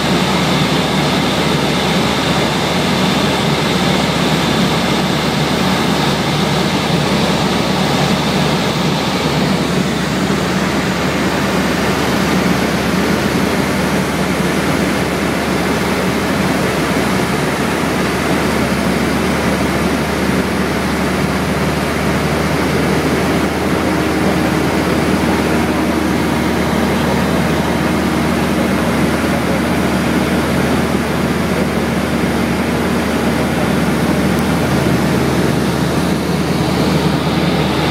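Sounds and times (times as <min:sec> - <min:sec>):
light aircraft engine: 0:00.0 - 0:37.9
rushing air: 0:19.6 - 0:37.9.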